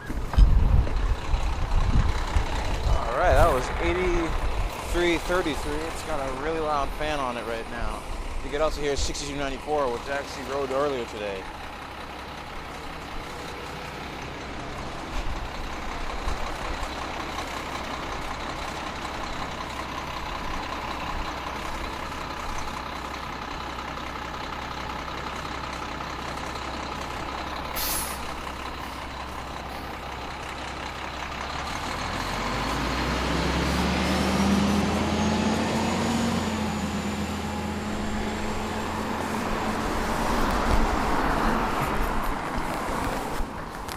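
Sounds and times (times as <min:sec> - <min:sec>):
engine cooling fan running: 0:00.0 - 0:31.6
bus engine accelerating with whine: 0:00.0 - 0:43.9
brief hiss: 0:27.8 - 0:28.3.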